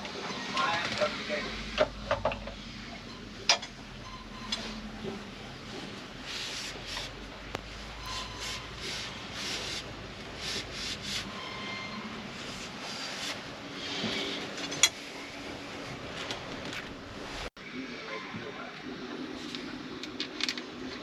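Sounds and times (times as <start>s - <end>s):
rubbing or scraping strokes: 5.7s - 7.2s, 7.8s - 14.6s.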